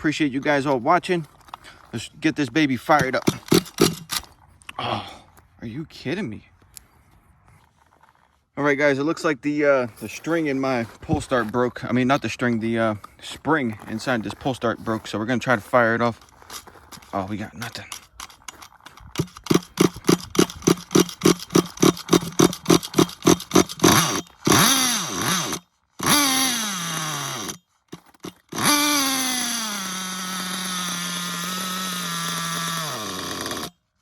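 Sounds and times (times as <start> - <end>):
nitro engine sputtering and idling: 2.9 - 4.2, 16.9 - 33.8.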